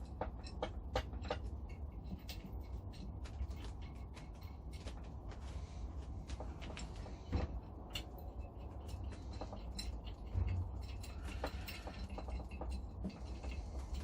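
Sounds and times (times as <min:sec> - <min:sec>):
steady low rumble: 0:00.0 - 0:14.0
metal parts and tools clicking: 0:07.6 - 0:14.0.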